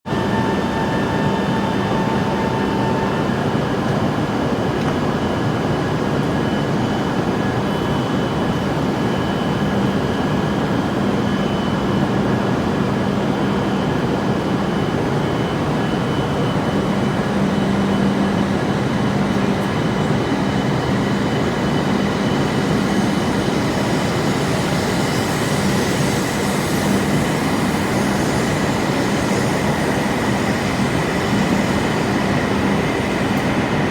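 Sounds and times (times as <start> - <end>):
train rolling and air noise: 0.1 - 33.9.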